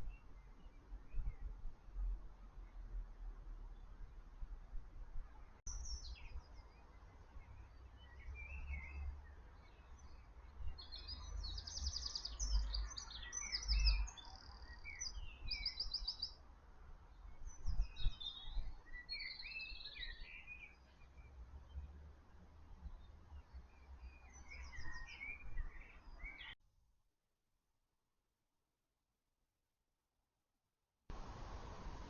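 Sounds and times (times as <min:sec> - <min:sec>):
birds chirping and singing: 0:10.7 - 0:16.3, 0:17.6 - 0:21.0, 0:23.4 - 0:26.6.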